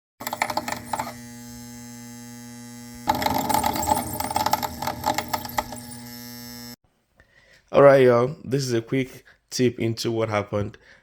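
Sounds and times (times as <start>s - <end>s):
electrical hum: 0.2s - 6.8s.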